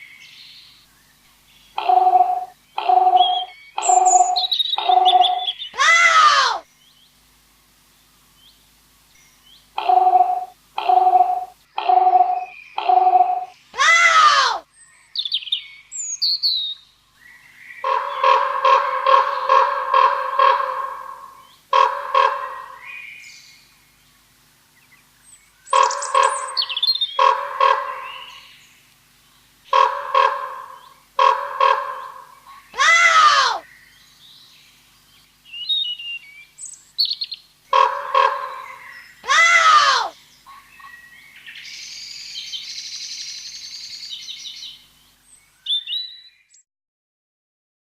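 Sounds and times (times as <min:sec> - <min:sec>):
short repeated bird notes: 0:01.8 - 0:06.4
loud swooping bird call: 0:01.8 - 0:06.6, 0:25.7 - 0:28.5, 0:29.7 - 0:33.7, 0:37.7 - 0:40.2
hissing rasping call: 0:01.8 - 0:06.7, 0:09.8 - 0:14.6, 0:17.8 - 0:22.9, 0:25.7 - 0:28.5, 0:29.6 - 0:33.7, 0:37.7 - 0:40.8.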